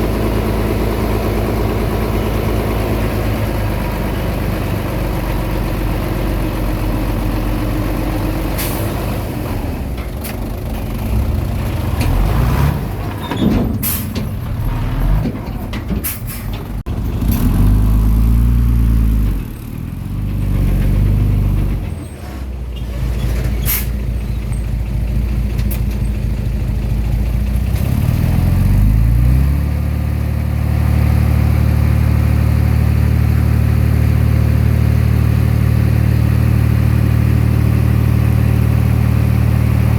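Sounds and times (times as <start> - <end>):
bulldozer diesel engine working: 0.0 - 39.9
metallic clanks: 13.0 - 16.9.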